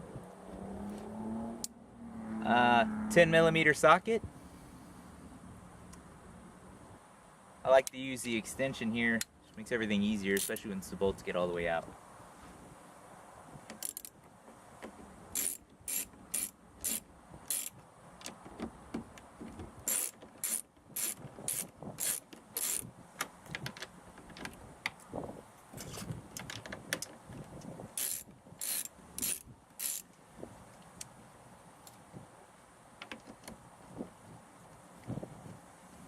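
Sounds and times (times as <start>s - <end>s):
socket ratchet clicking: 15.4s - 17.8s, 19.9s - 22.9s, 28.0s - 30.1s
handling and rubbing noise: 17.6s - 30.8s.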